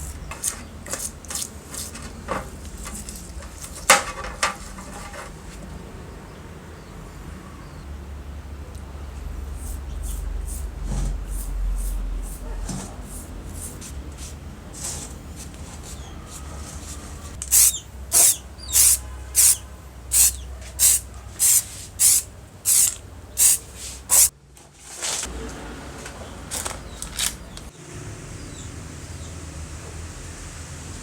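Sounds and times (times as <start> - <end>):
short sharp hissing bursts: 17.4 - 24.3.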